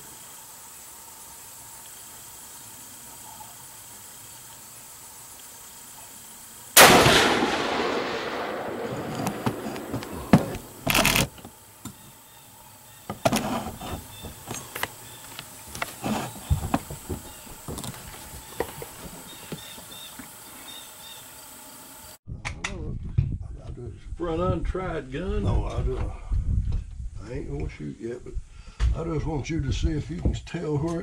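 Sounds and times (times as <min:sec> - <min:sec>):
rifle shot echoing: 0:06.8 - 0:11.2.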